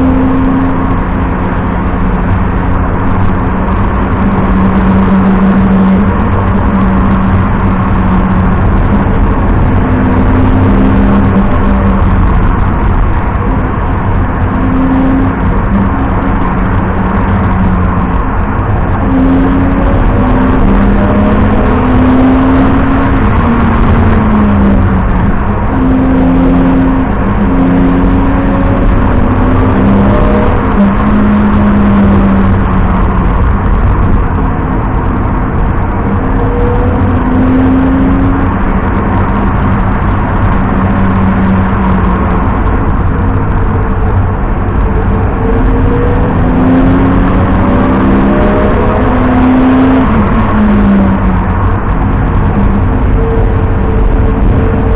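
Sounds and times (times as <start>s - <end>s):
car engine accelerating and shifting: 0.0s - 54.9s
tyre noise on wet road: 47.3s - 54.9s.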